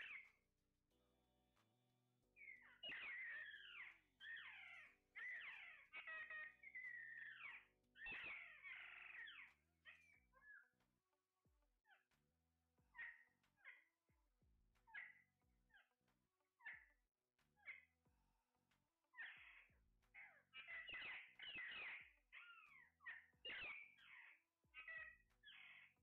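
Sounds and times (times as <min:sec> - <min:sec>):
parrots screeching: 0:00.0 - 0:00.2, 0:02.4 - 0:10.7, 0:12.9 - 0:13.9, 0:14.9 - 0:15.9, 0:19.1 - 0:26.0.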